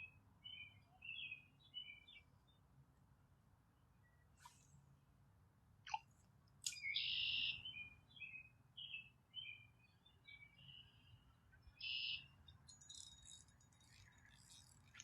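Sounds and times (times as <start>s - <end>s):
songbird buzzy notes and chirps: 6.7s - 15.0s.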